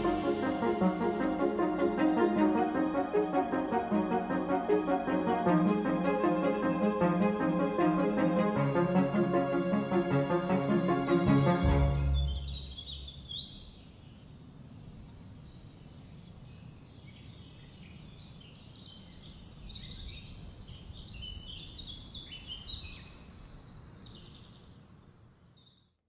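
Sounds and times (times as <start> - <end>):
small birds chirping: 10.6 - 25.6.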